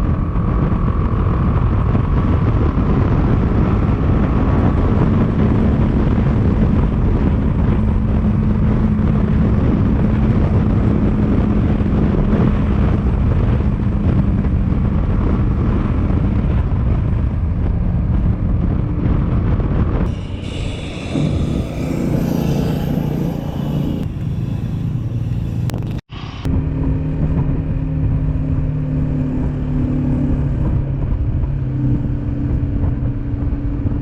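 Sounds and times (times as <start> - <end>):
motorcycle engine droning: 0.0 - 34.0
wind rush on microphone: 0.0 - 34.0
steady hum: 20.1 - 26.8.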